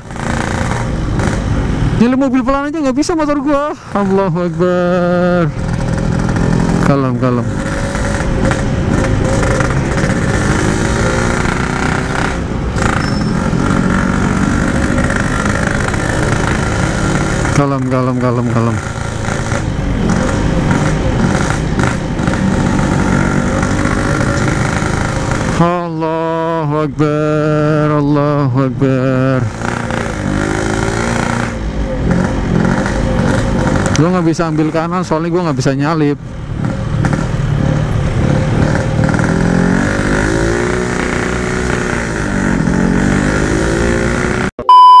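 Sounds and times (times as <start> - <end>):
two-stroke motorcycle engine running: 0.0 - 2.1, 3.9 - 26.5, 29.2 - 35.6
loud steady beep tone: 44.6 - 45.0.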